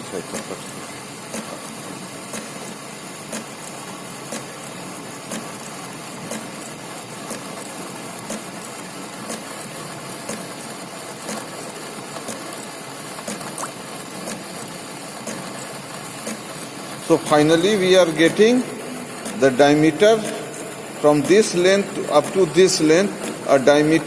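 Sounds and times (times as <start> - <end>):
lathe running: 14.0 - 24.0.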